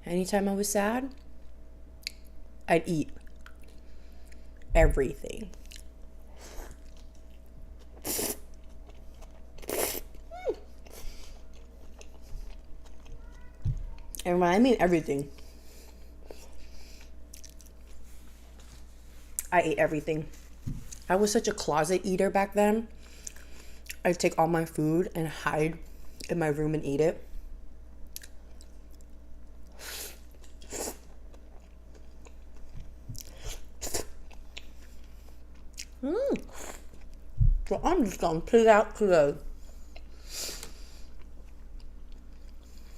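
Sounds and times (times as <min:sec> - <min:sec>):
person chewing food: 0:03.2 - 0:04.7, 0:05.5 - 0:14.3, 0:15.3 - 0:19.5, 0:23.0 - 0:24.0, 0:28.0 - 0:37.3, 0:39.6 - 0:42.9.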